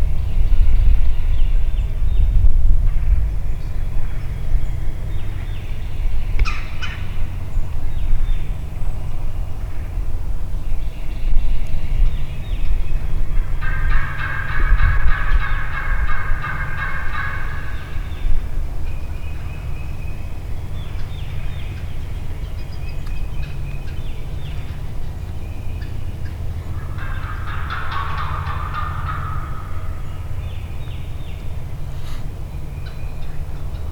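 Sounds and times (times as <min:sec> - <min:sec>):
steady low rumble: 0:00.0 - 0:33.9
turkey gobbling: 0:06.4 - 0:07.2, 0:13.4 - 0:18.2, 0:23.4 - 0:32.2.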